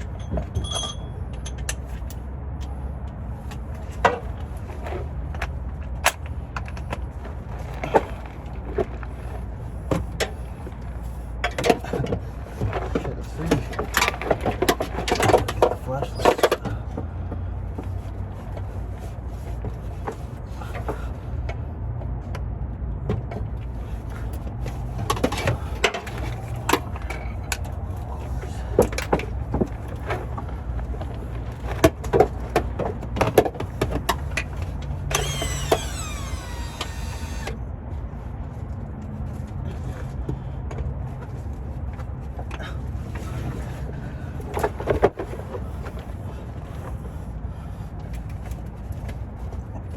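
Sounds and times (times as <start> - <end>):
tools clanking on metal: 0.0 - 2.8.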